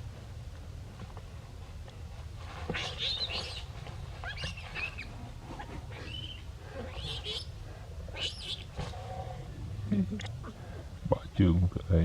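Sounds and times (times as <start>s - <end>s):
baby monkey crying: 2.8s - 5.2s, 5.9s - 7.5s, 8.1s - 8.8s.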